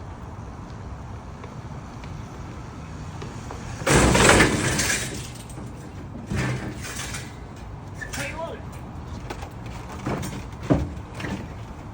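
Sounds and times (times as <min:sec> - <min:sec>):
motorcycle and ramp crashing: 0:03.8 - 0:07.6
metal ramp clattering: 0:03.8 - 0:08.4.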